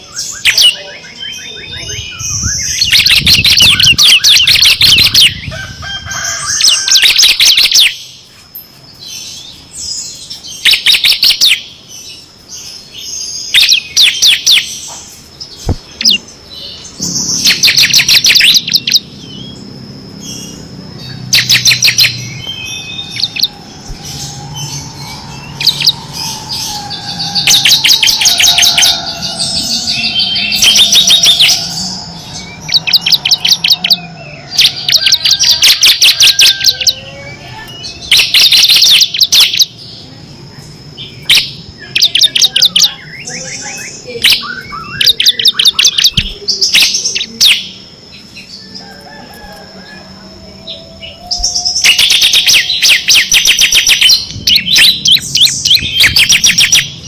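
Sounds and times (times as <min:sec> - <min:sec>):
bird singing rattling trills: 0:00.0 - 0:49.6, 0:50.7 - 0:57.0.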